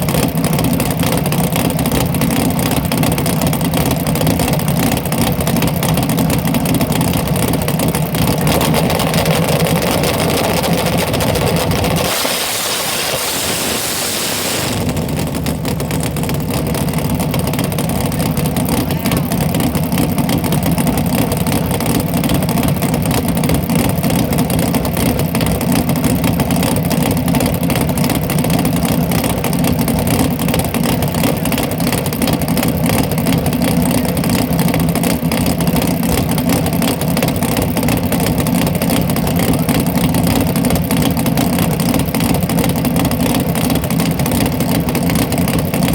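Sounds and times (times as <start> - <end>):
drag car engine idling: 0.0 - 45.9
hiss: 11.9 - 15.4.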